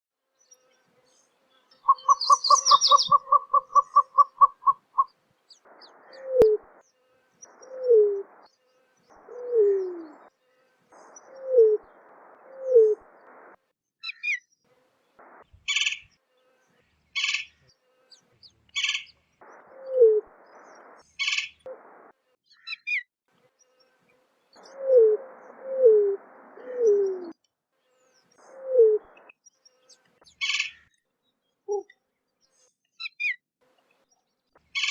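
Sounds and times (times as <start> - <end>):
rapid pulsed bird notes: 1.6 - 13.6, 18.8 - 22.1
short high bird chirps: 1.8 - 5.1
bird cooing: 1.9 - 5.1, 6.1 - 6.6, 7.6 - 8.3, 9.3 - 10.2, 11.3 - 11.8, 12.5 - 13.0, 19.7 - 20.3, 24.6 - 27.3, 28.4 - 29.1.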